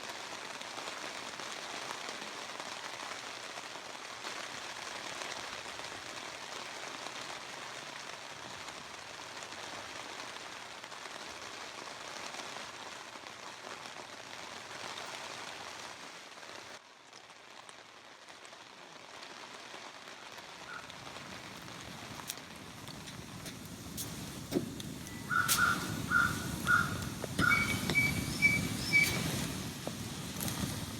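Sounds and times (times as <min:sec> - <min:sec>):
water hissing: 0:20.9 - 0:30.9.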